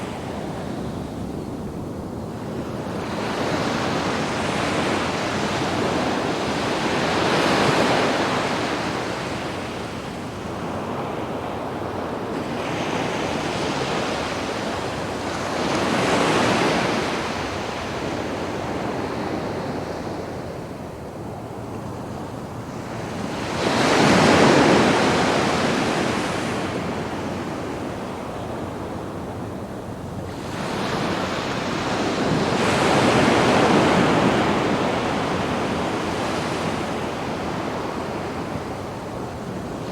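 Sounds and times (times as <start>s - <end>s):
sea waves breaking on beach: 21.6s - 29.7s, 30.3s - 39.9s.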